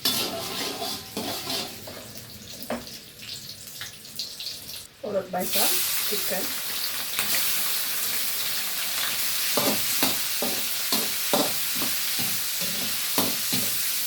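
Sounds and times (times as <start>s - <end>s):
spatula scraping a pan: 0.0s - 2.2s
chicken sizzling in hot oil: 0.0s - 14.0s.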